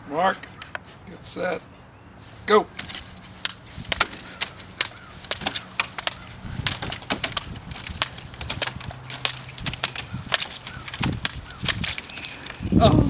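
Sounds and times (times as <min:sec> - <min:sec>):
eggshells cracking: 0:03.4 - 0:12.6.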